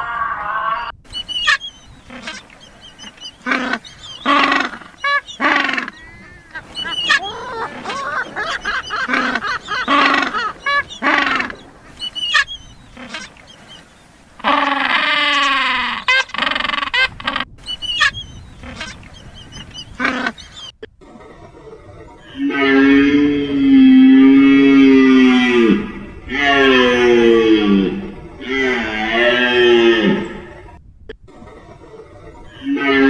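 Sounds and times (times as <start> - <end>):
bird honking squawking calls: 1.1 - 20.9.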